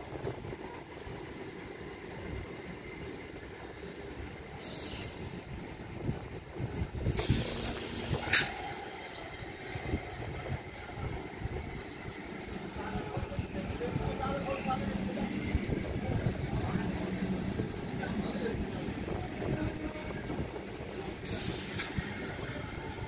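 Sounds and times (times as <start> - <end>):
train wheels rumbling on rails: 0.0 - 23.0
high-pitched wheel squeals: 8.3 - 9.4.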